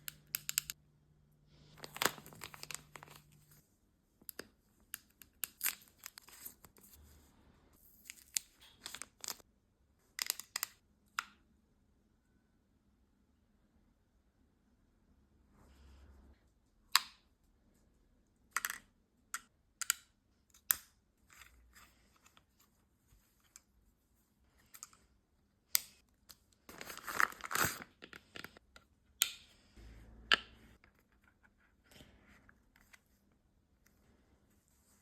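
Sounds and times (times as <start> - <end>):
packaging crinkling and tearing: 1.7 - 3.4, 26.7 - 28.6.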